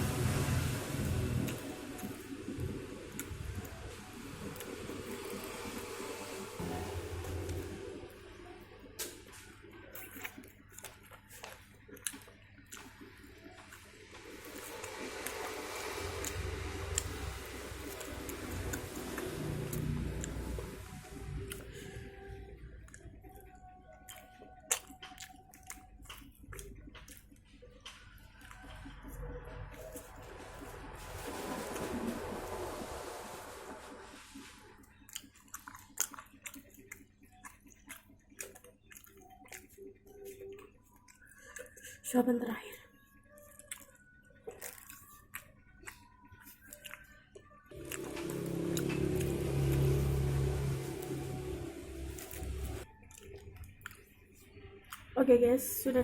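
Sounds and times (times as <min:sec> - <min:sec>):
wet chewing and lip smacks: 0:09.0 - 0:30.7, 0:34.8 - 0:42.1, 0:42.9 - 0:49.9, 0:52.1 - 0:55.2
low rumbling noise: 0:47.8 - 0:52.8.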